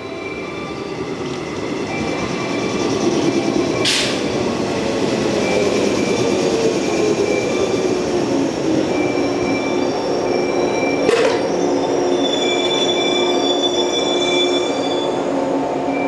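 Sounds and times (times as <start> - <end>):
train rumbling: 0.0 - 16.0
high-pitched whines and squeals: 5.3 - 15.3.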